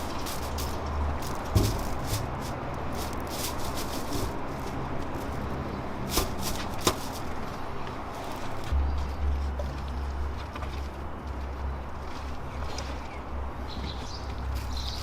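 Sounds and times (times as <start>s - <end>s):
rattling and clattering: 0.0s - 4.7s
sharp knocks: 1.4s - 2.4s.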